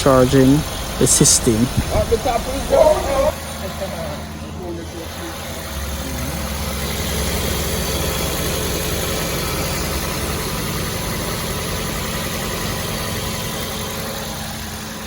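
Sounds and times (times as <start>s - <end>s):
car idling hum: 0.0s - 15.0s.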